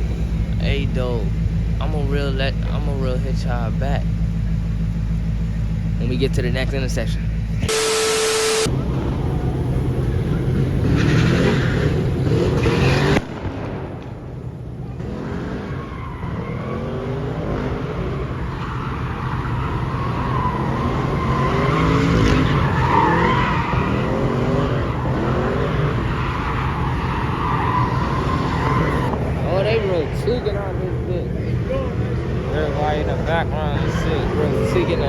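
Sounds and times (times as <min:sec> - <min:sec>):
car engines revving: 0:00.0 - 0:35.0
tyres squealing: 0:14.8 - 0:35.0.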